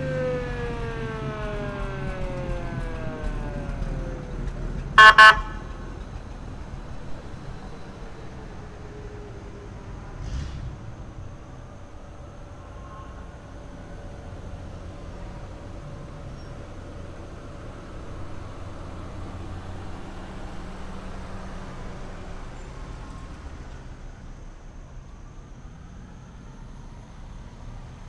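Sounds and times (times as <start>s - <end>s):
fire engine motor rumbling: 0.0s - 28.0s.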